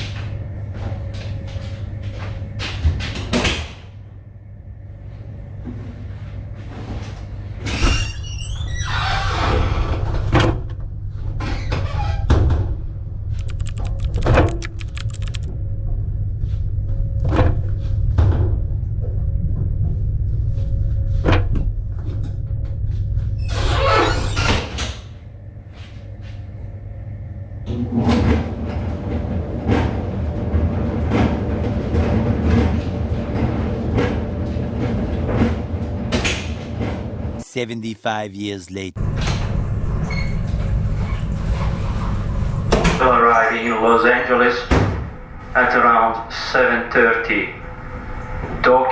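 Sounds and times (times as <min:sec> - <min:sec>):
low machinery hum: 0:00.0 - 0:07.7, 0:10.1 - 0:23.4
rapid clicks: 0:13.4 - 0:15.5.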